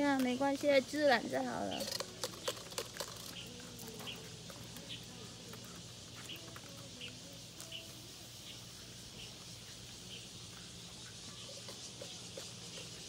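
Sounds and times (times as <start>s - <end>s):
bird chirping: 1.5s - 13.0s.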